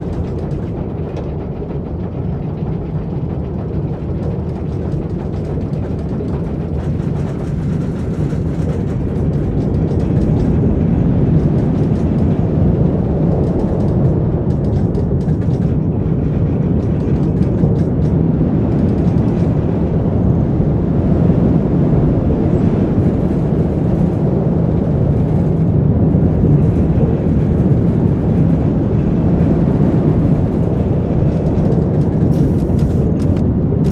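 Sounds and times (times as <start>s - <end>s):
roller coaster rumbling on track: 0.0s - 33.9s.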